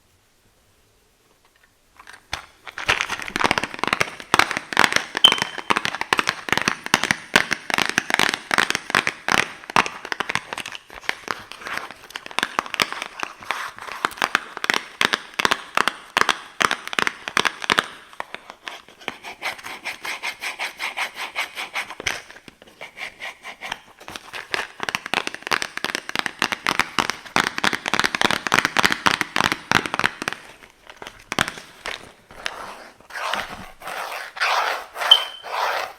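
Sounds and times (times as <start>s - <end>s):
rapid tapping and scratching on boxes: 3.3s - 30.6s.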